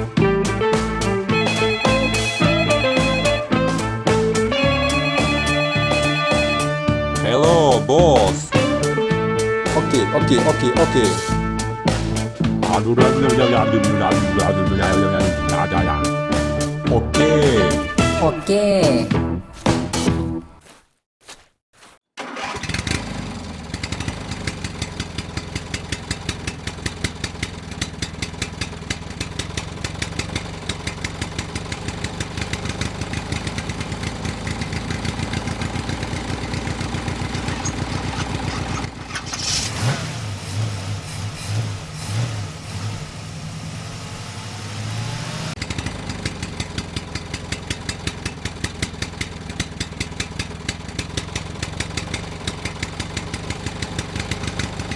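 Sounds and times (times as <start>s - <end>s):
small engine running: 21.8s - 39.9s, 40.5s - 54.9s.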